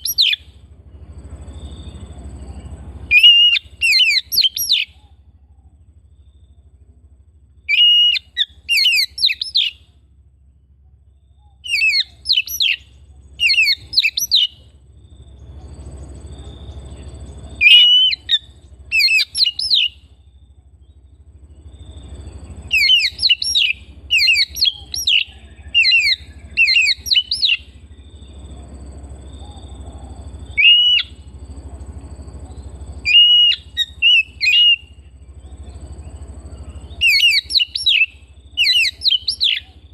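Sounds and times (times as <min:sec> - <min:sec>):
bird singing whistled phrases: 0:00.0 - 0:00.6, 0:01.5 - 0:05.3, 0:07.7 - 0:09.9, 0:11.3 - 0:14.6, 0:16.1 - 0:20.2, 0:21.7 - 0:28.4, 0:29.3 - 0:31.3, 0:32.5 - 0:39.8
low steady hum: 0:00.0 - 0:39.9.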